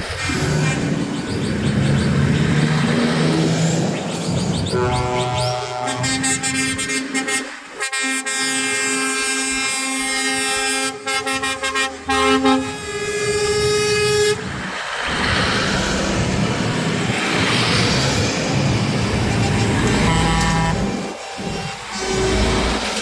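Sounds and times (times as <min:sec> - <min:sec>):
passing trucks engine and tyres: 0:00.0 - 0:23.0
truck air horns blasting: 0:04.7 - 0:14.7, 0:19.5 - 0:23.0.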